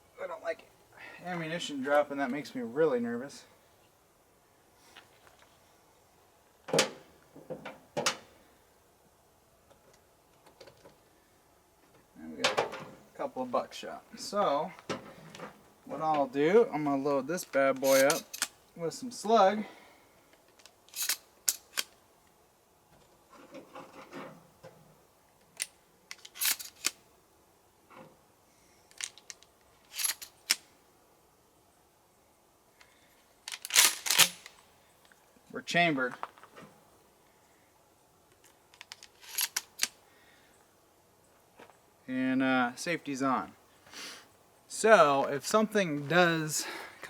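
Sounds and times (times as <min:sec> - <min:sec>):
soft handling noise: 0:11.8 - 0:18.6, 0:35.8 - 0:36.8
shells clicking into shotgun: 0:17.8 - 0:18.5, 0:33.5 - 0:34.6, 0:38.8 - 0:39.9.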